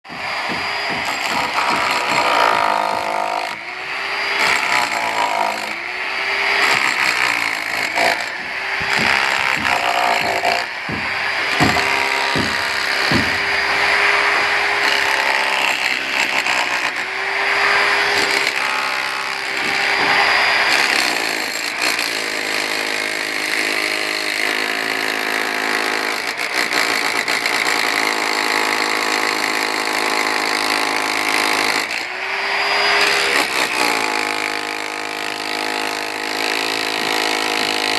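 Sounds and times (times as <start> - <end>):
electric drill under load: 0.1 - 37.9
knocks: 8.3 - 13.4, 19.6 - 20.3.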